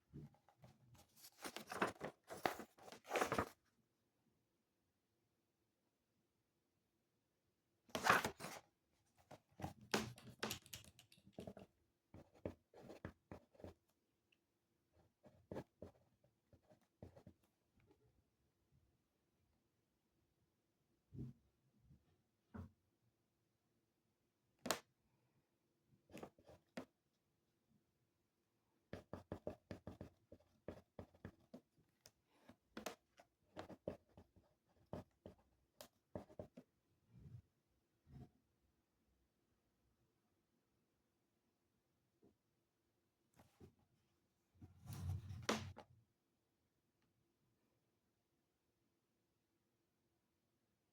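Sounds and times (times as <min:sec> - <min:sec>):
pen scratching on paper: 0:12.2 - 0:13.8, 0:15.2 - 0:17.3, 0:28.9 - 0:31.6, 0:32.8 - 0:35.4, 0:36.1 - 0:36.6.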